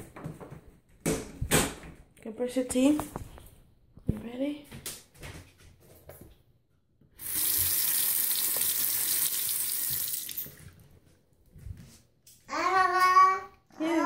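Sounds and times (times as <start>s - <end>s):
tap running water into sink: 7.2s - 10.8s.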